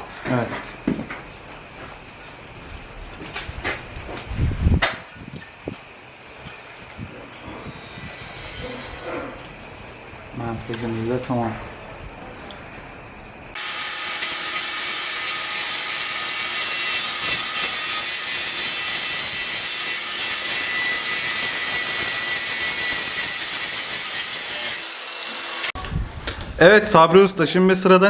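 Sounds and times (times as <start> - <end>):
power saw cutting: 7.5 - 9.3, 13.6 - 26.8.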